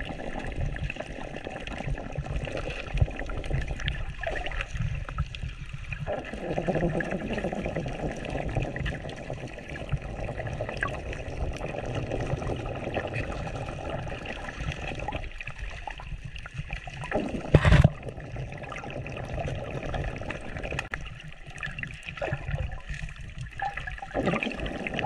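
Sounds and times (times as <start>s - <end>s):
water running and trickling: 0.0s - 25.0s.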